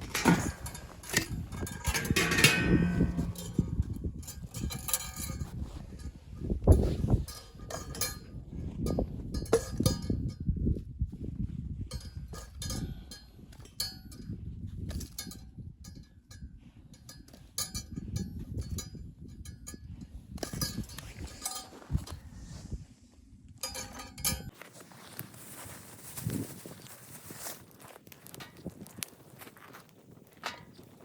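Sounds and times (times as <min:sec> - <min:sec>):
knocks and metallic clinks: 0:00.0 - 0:06.1, 0:20.4 - 0:22.1, 0:23.6 - 0:24.5.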